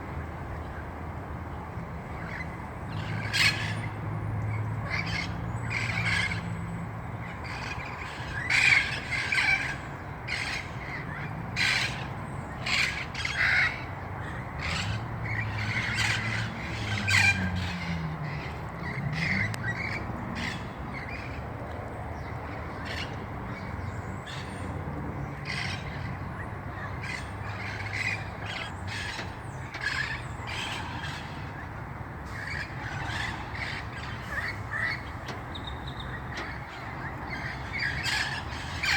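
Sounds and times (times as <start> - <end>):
parrots squawking: 14.6 - 21.3, 26.7 - 29.2, 37.3 - 38.9.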